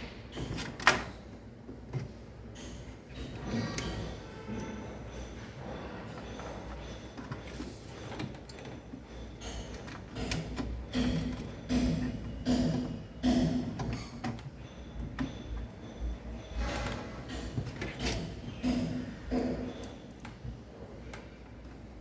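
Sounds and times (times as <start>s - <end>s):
objects knocking and rattling: 0.0s - 22.0s.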